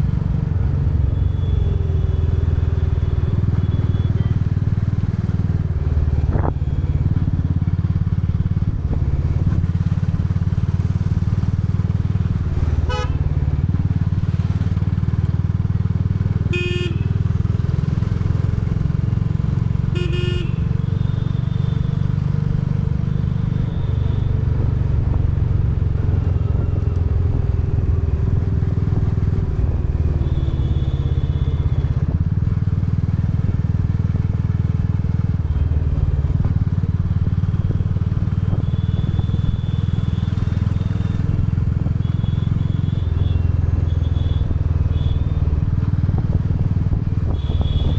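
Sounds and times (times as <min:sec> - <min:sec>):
motorcycle engine running: 0:00.0 - 0:47.9
horn toots: 0:12.9 - 0:13.2, 0:16.5 - 0:17.2, 0:19.9 - 0:20.7, 0:47.3 - 0:47.9.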